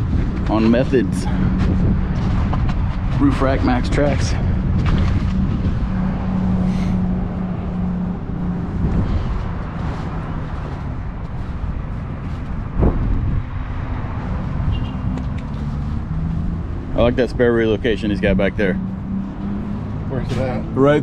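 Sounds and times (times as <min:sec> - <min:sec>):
vehicle engine running: 0:00.0 - 0:13.4
outdoor background rumble: 0:00.0 - 0:21.0.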